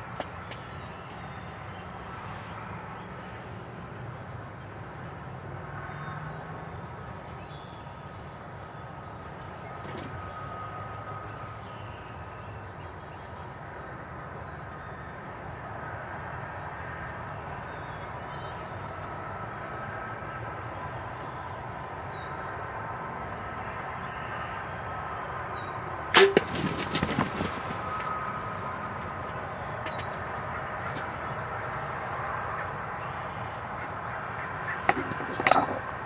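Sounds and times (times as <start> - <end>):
bow shot crack: 26.2 - 27.0
clattering knocks: 34.9 - 35.9.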